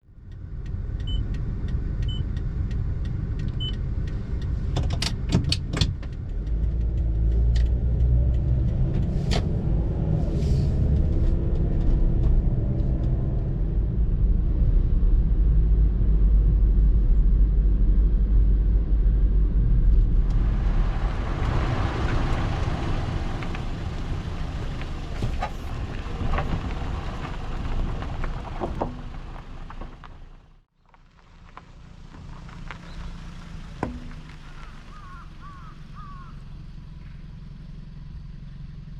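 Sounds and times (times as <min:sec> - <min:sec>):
car engine and road rumble: 0:00.0 - 0:38.9
hissy tyre and road noise: 0:00.0 - 0:38.9
light ticks: 0:00.2 - 0:09.7.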